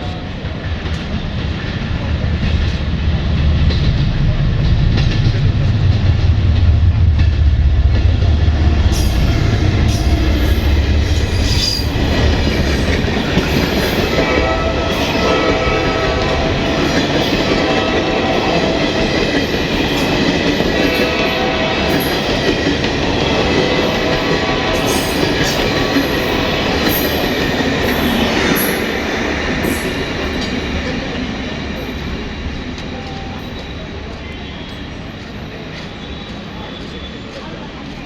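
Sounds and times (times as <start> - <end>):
train wheels rumbling on rails: 0.0 - 38.0
train wheels squealing: 8.9 - 14.2, 29.6 - 37.7.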